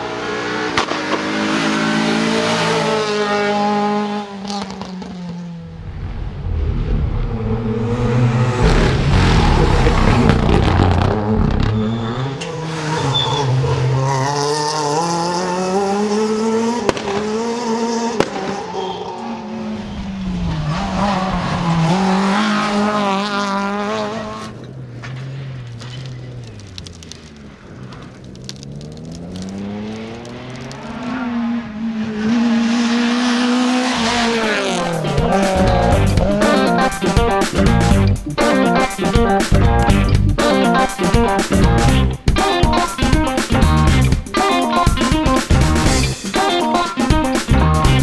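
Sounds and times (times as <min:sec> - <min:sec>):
rally car engine revving: 0:00.0 - 0:48.0
sharp exhaust pops: 0:00.6 - 0:03.2, 0:08.6 - 0:12.6, 0:16.8 - 0:18.7, 0:22.7 - 0:31.2, 0:33.8 - 0:48.0
music: 0:34.9 - 0:48.0.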